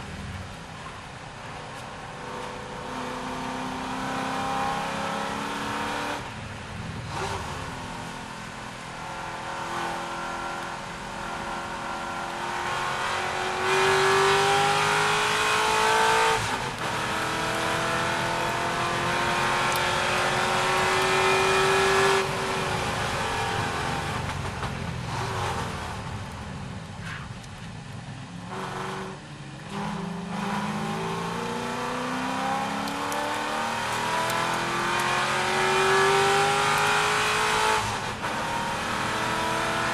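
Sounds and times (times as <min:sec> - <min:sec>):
racing car engine accelerating: 0:02.3 - 0:06.3, 0:09.0 - 0:24.2, 0:28.5 - 0:39.9.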